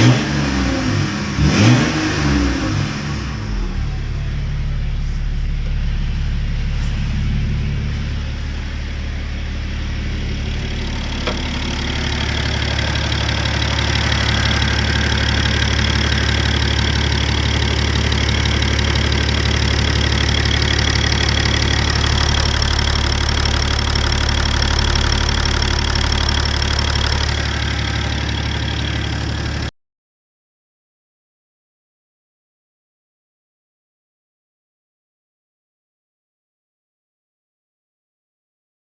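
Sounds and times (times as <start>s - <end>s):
diesel engine idling: 3.1s - 29.7s.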